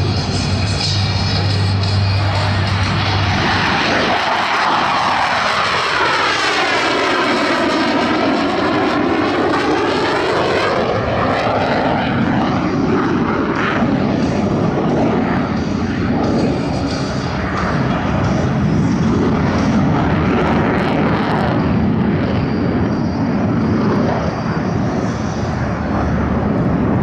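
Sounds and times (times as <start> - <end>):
jets passing overhead: 0.0 - 27.0.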